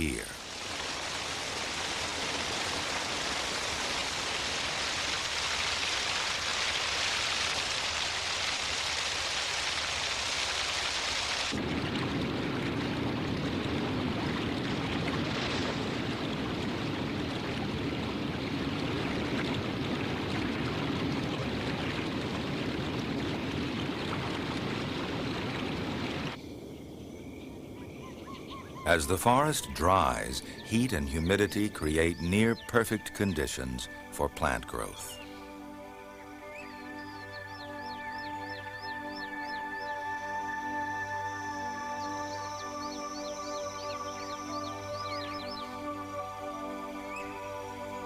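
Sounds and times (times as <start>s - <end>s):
heavy rain falling: 0.0s - 26.4s.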